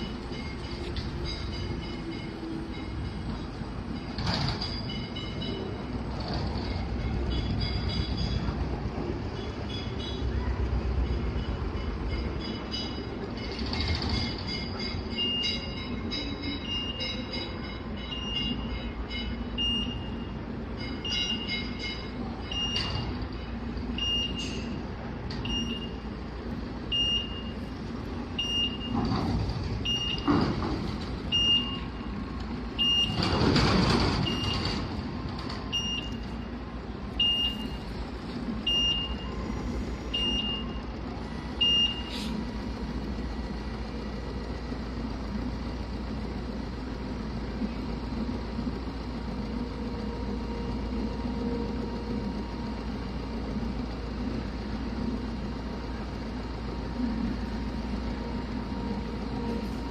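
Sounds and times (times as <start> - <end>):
low hum of forklift: 0.0 - 59.9
forklift reversing beeper: 11.0 - 24.8, 25.4 - 26.1, 26.8 - 32.2, 32.8 - 38.0, 38.6 - 42.4.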